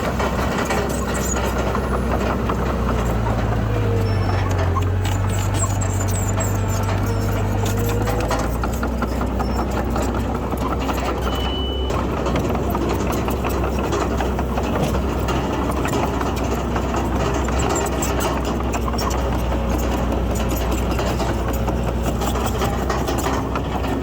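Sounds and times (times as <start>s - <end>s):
heavy diesel machinery running: 0.0s - 24.0s
short high beep: 11.3s - 11.9s.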